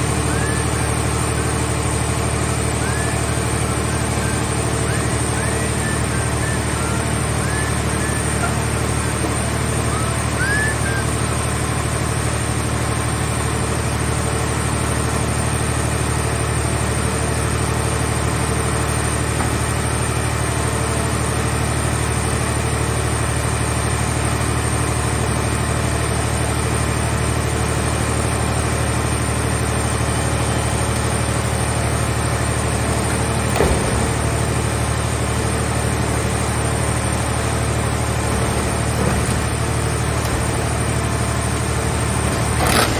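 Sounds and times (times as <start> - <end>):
engine running steadily: 0.0 - 42.9
short falling squeal: 0.2 - 1.0, 2.6 - 11.6.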